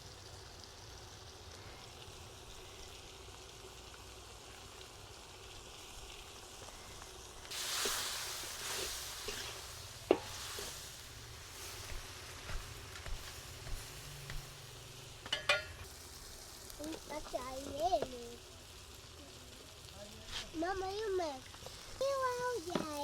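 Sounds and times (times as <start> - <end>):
food sizzling in a pot: 0.0 - 23.0
utensil knocking against pot: 10.1 - 10.3.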